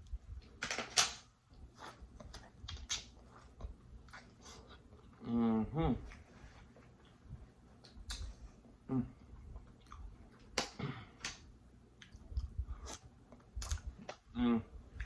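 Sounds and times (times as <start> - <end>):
person chewing food: 1.5 - 5.3, 6.0 - 11.2, 11.8 - 15.0
mouth clicks and lip smacks: 7.8 - 8.4, 12.0 - 14.3.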